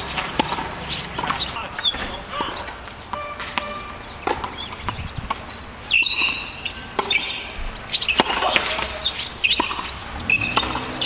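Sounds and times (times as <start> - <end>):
small birds chirping: 0.0 - 11.0
sharp knocks: 0.4 - 5.4.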